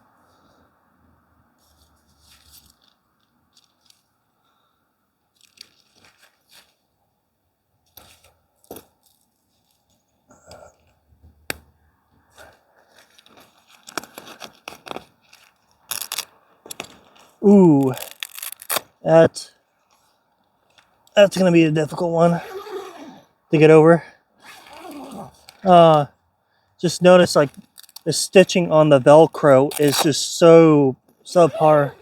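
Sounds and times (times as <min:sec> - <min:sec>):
tent fabric rustling and crinkling: 0:05.3 - 0:07.0, 0:12.3 - 0:19.0, 0:29.7 - 0:30.1.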